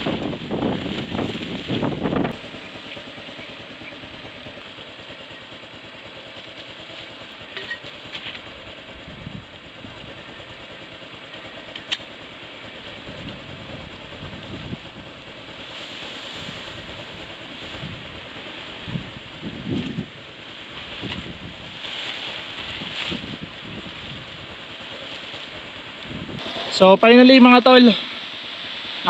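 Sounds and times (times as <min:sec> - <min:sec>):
wind rushing over microphone: 0:00.0 - 0:02.9, 0:08.8 - 0:10.5, 0:12.8 - 0:28.1.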